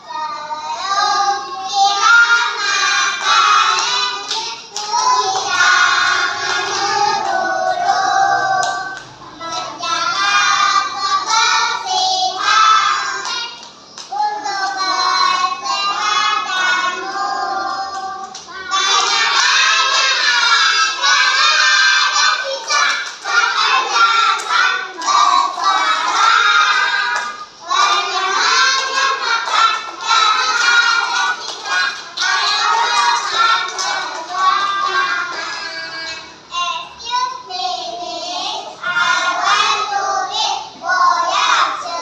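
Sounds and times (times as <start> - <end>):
children singing together: 0.0 - 42.0.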